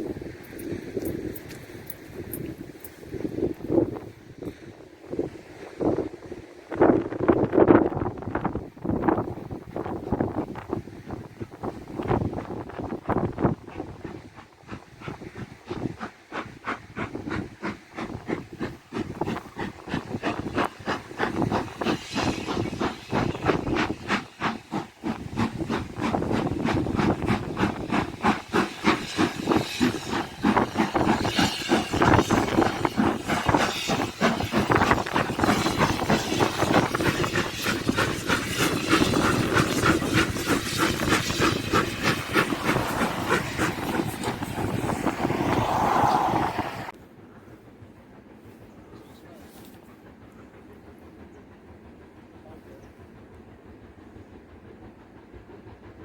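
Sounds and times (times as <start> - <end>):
steam locomotive exhaust beats: 0.0 - 56.0
steam hissing: 8.4 - 47.0.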